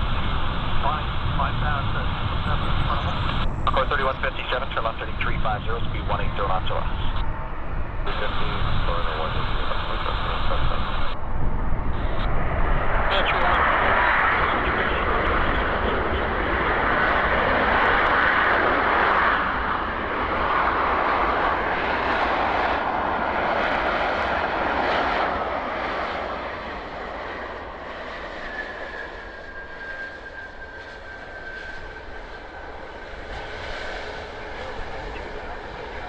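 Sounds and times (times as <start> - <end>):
jet airliner engine rush: 0.0 - 36.0
thin steady whine: 8.0 - 12.4.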